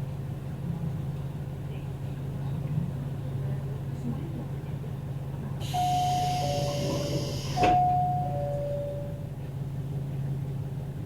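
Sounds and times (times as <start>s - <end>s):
diesel engine idling hum: 5.3s - 10.6s
two-tone door chime: 5.7s - 9.4s.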